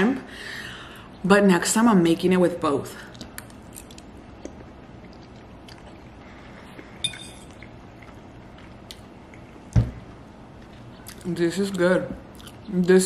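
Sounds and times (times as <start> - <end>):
wet chewing: 3.1 - 9.5, 12.3 - 12.8.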